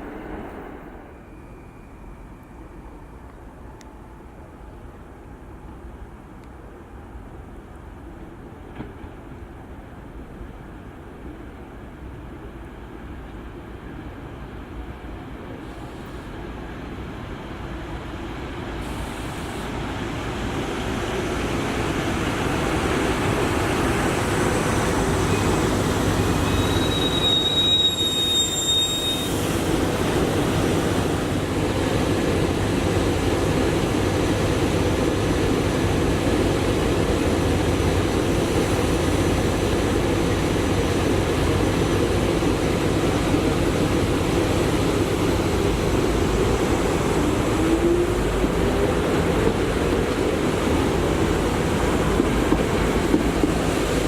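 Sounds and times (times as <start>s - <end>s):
train wheels rumbling on rail: 0.0s - 54.0s
high-pitched wheel squeal: 26.4s - 29.5s.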